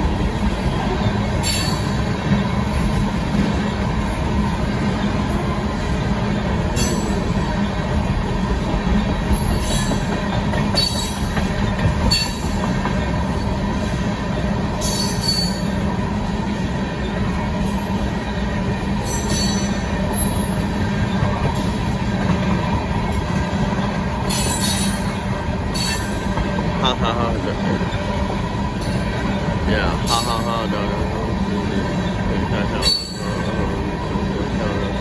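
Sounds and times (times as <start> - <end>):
train wheels rumbling on rail: 0.0 - 35.0.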